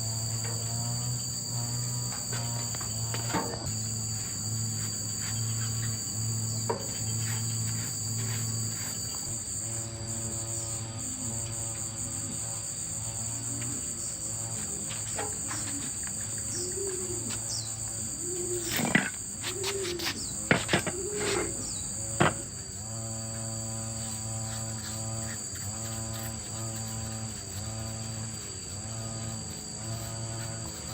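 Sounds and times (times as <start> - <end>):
insects trilling: 0.0 - 30.9.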